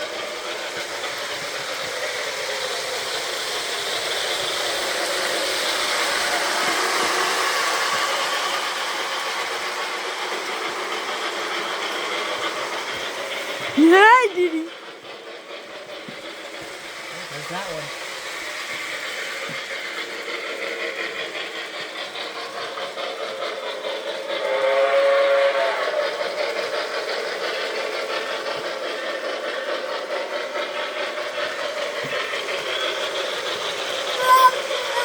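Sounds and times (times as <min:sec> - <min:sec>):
model train rumbling on track: 0:00.0 - 0:35.0
train whistle: 0:24.4 - 0:26.4, 0:34.1 - 0:35.0.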